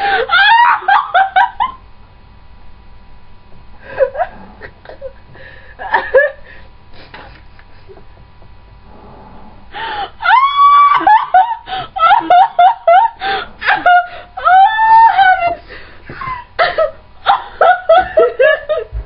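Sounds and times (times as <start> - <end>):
person wailing high-pitched cries: 0.2 - 1.4, 10.2 - 13.1, 13.7 - 15.6.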